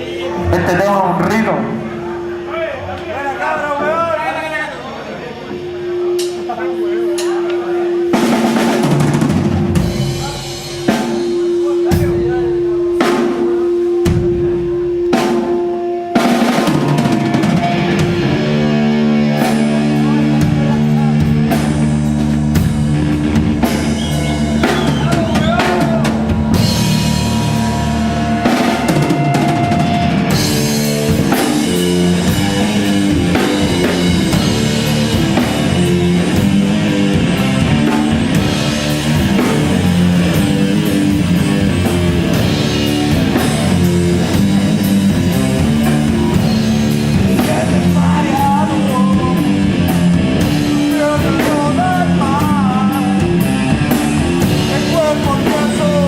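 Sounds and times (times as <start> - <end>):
live rock band playing: 0.0 - 56.0
drum kit pounding beat: 5.5 - 56.0
person singing: 47.2 - 49.8, 50.4 - 56.0.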